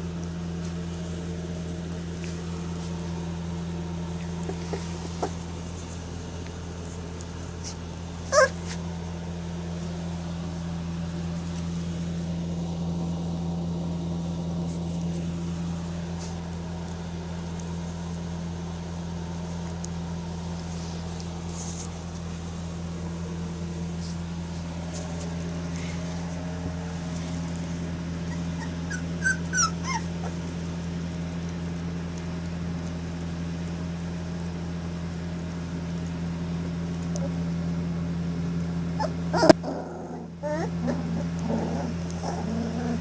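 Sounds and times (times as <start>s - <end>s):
steady low hum: 0.0s - 43.0s
puppies whimpering and yipping: 4.1s - 5.7s, 7.6s - 8.8s, 28.1s - 30.6s, 38.9s - 43.0s.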